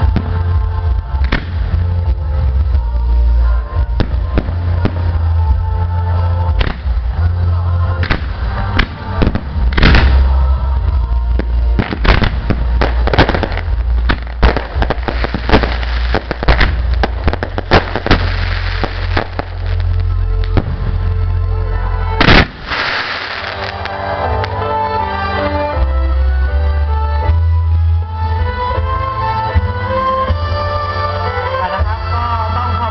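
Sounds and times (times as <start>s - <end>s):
fireworks crackling: 0.0s - 24.8s
music with heavy bass: 0.0s - 32.9s
fireworks bangs: 8.0s - 10.4s, 11.4s - 21.2s, 22.2s - 24.5s.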